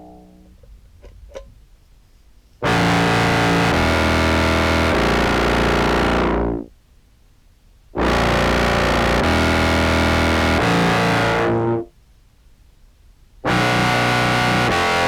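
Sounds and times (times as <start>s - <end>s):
distorted low clarinet phrase: 0.0s - 0.6s.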